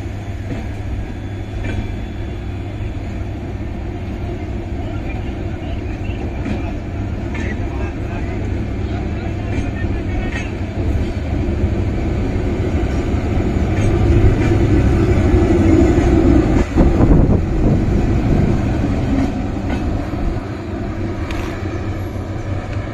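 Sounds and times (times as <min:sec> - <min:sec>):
train coaches rumbling past: 0:00.0 - 0:22.9
wheel clatter over rail joints: 0:12.8 - 0:22.9.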